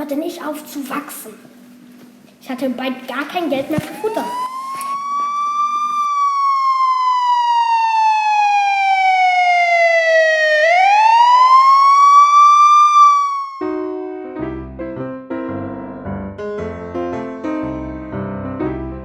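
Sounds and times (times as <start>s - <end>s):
siren-like wailing tone: 3.7s - 13.9s.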